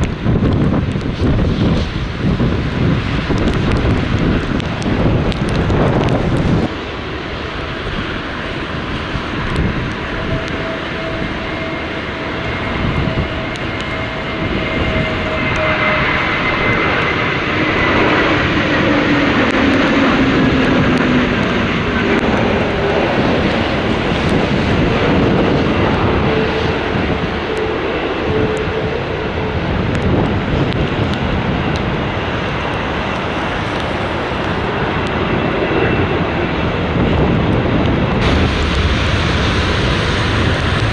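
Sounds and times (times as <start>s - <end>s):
jet airliner engines roaring: 0.0s - 40.9s
engine whine sliding down: 33.1s - 40.9s.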